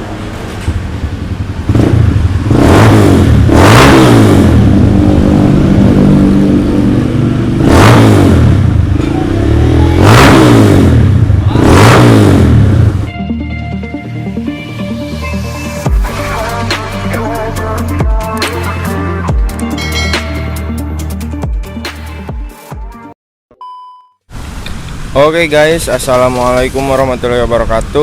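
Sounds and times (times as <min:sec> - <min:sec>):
motorcycle engine revving: 0:00.0 - 0:13.1.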